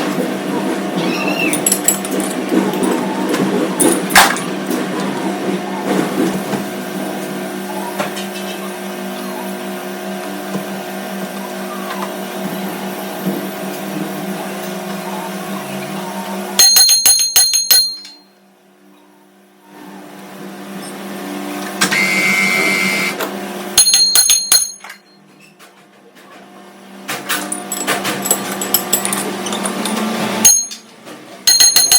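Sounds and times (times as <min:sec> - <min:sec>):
sharp metallic clinks: 0:16.6 - 0:18.3, 0:23.8 - 0:25.1, 0:30.4 - 0:30.9.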